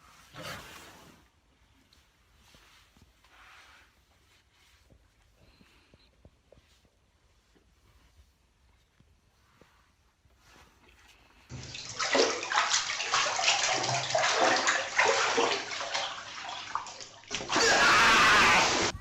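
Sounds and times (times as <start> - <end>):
splashing rushing water: 11.5 - 18.9.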